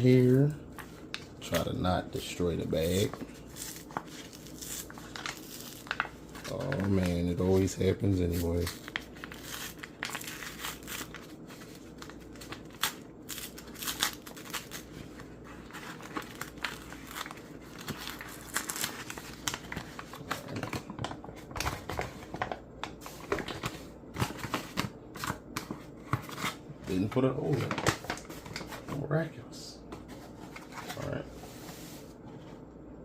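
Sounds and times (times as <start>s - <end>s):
paper bag crinkling: 1.3s - 14.9s.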